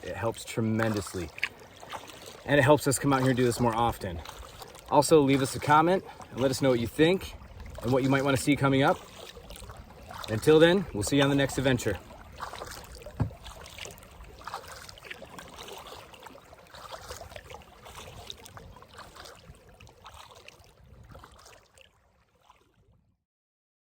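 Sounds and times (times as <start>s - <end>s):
water dripping: 0.0s - 7.0s, 7.6s - 20.7s
paddle splashing in water: 0.0s - 23.0s.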